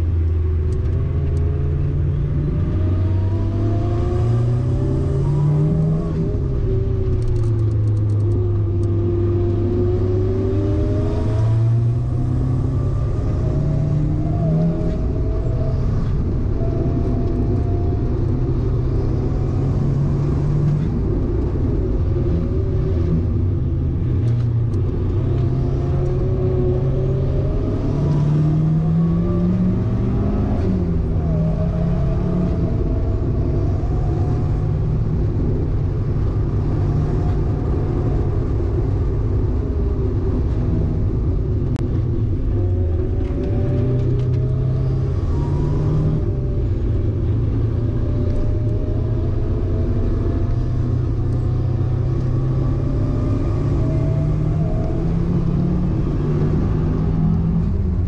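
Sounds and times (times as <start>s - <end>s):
car engine accelerating: 0.0s - 58.0s
tyre and road noise: 0.0s - 58.0s.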